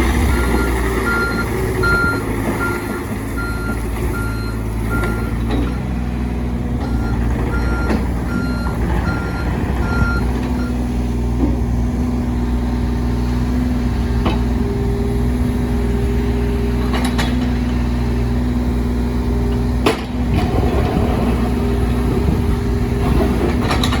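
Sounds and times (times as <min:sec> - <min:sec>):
diesel engine running: 0:00.0 - 0:24.0
travel alarm beeping: 0:00.3 - 0:05.9, 0:06.9 - 0:10.8.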